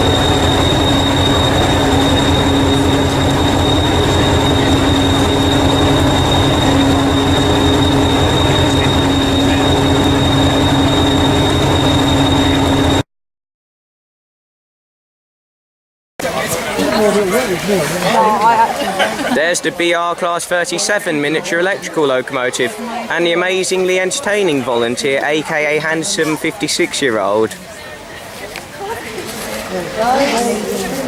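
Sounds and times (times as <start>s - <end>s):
model train motor whining: 0.0s - 13.0s
wheels rumbling on track: 0.0s - 13.0s.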